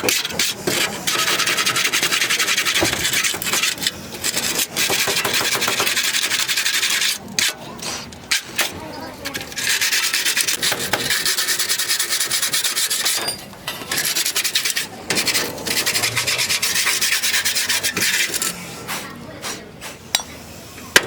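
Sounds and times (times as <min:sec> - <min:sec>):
abrasive rubbing on rusty metal: 0:09.4 - 0:18.8.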